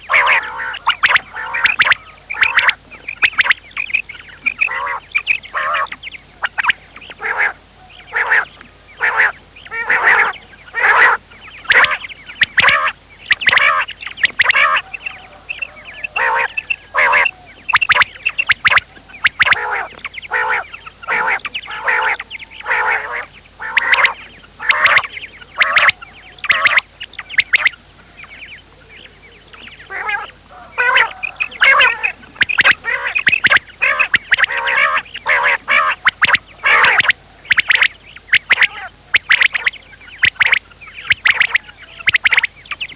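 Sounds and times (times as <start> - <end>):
harsh bird calls: 0.0 - 42.9.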